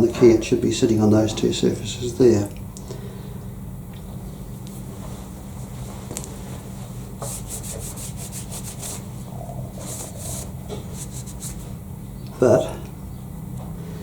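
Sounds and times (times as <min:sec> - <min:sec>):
rubbing strokes on steel: 0:07.2 - 0:11.8.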